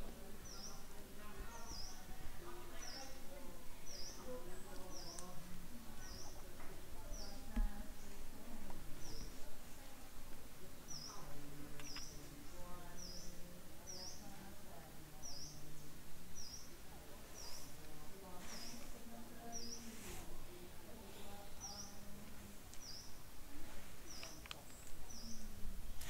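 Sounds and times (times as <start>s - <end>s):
small bird chirping: 3.8s - 5.4s, 10.9s - 14.4s, 15.2s - 17.8s, 22.8s - 23.2s, 24.0s - 25.5s.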